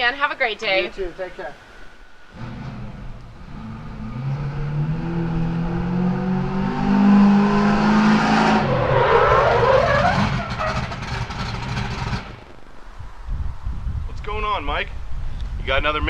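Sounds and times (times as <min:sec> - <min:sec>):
car engine revving: 0:02.3 - 0:12.6.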